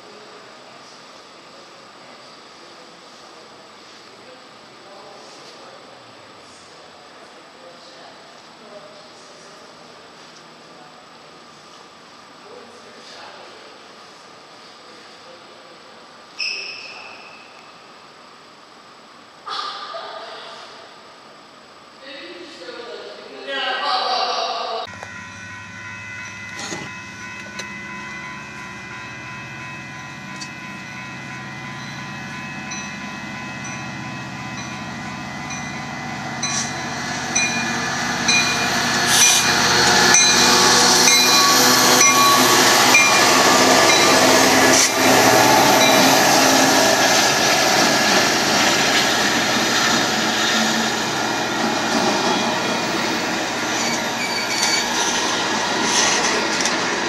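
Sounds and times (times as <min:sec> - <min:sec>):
freight train approaching: 0:24.8 - 0:57.0.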